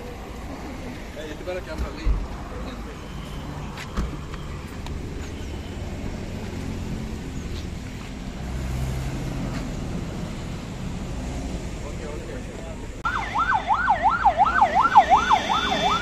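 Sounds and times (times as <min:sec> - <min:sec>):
vehicle engines idling: 0:00.0 - 0:16.0.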